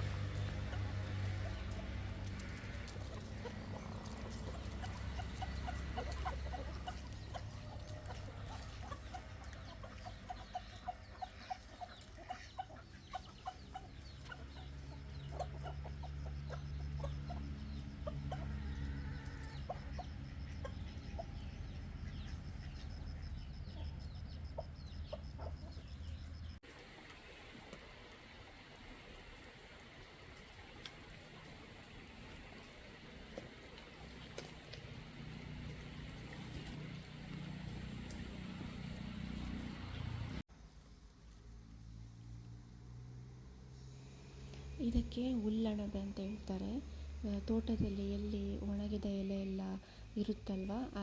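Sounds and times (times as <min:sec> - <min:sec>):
chickens clucking: 0:00.0 - 0:26.3.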